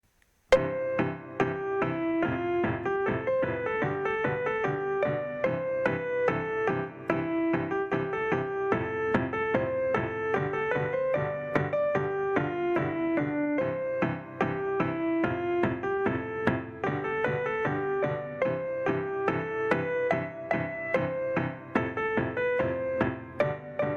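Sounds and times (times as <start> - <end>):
electronic keyboard piano melody: 0.5 - 23.9.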